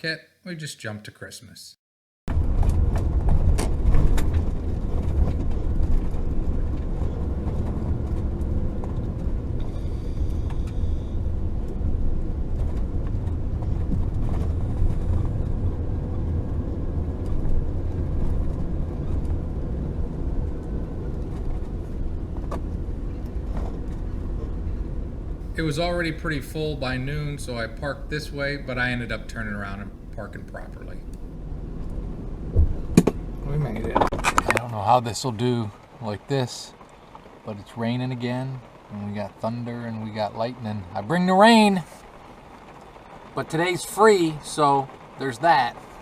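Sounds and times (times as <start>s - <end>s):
road and engine rumble: 2.3s - 46.0s.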